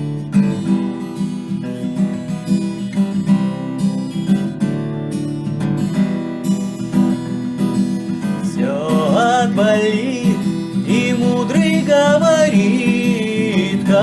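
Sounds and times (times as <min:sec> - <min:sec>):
acoustic guitar strumming: 0:00.0 - 0:14.0
person singing wavering melody: 0:08.4 - 0:14.0.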